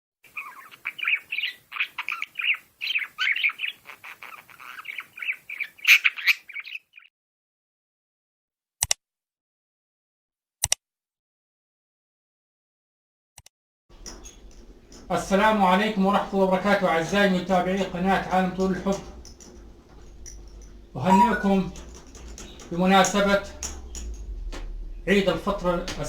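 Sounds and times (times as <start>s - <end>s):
birds chirping and squawking: 0.3s - 7.1s, 13.9s - 26.0s
sharp clicks: 13.4s - 26.0s.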